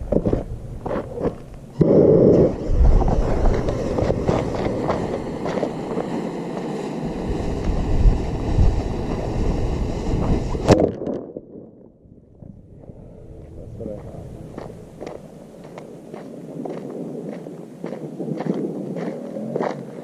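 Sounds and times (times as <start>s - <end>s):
rocket motor rushing and crackling: 0.0s - 10.8s
sharp pop: 10.6s - 11.3s.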